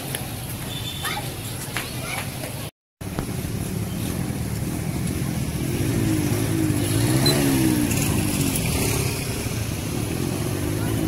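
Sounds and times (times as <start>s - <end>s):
steady traffic hum: 0.0s - 11.0s
vehicle engine passing: 3.4s - 11.0s.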